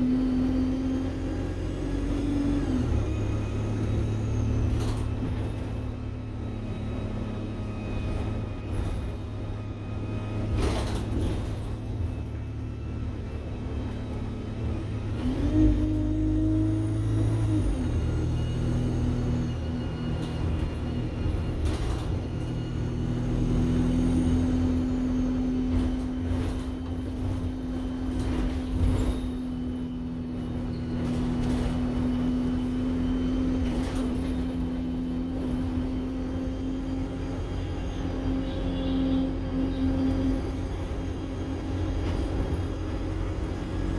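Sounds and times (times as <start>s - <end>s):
bus engine whine: 0.0s - 43.9s
faint high turbo whistle: 15.0s - 43.6s.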